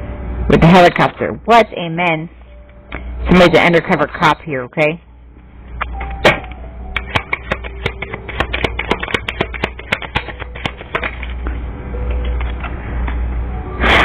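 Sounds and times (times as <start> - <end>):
low hum: 0.0 - 14.0
cards being shuffled: 7.0 - 11.4.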